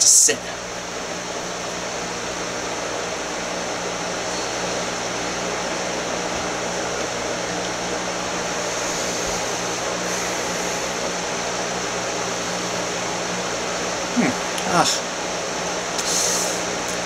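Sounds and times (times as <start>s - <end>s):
steady mechanical whir: 0.0s - 17.0s.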